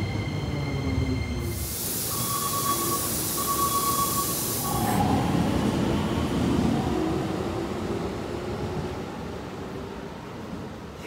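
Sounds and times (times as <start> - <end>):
steady high tone: 0.0 - 5.4
electric train pulling away: 0.0 - 8.5
hiss: 1.5 - 5.0.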